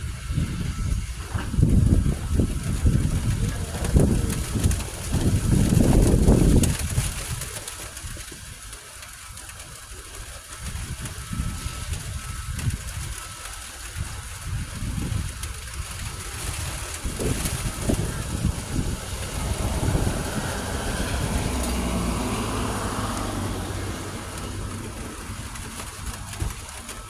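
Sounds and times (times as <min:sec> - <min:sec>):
thunder rumbling: 0:16.1 - 0:27.0.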